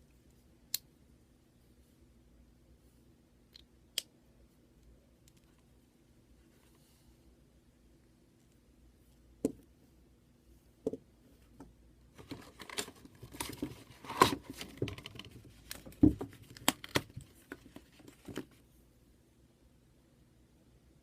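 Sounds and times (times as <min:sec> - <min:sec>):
packaging crinkling and rustling: 0:12.2 - 0:18.6.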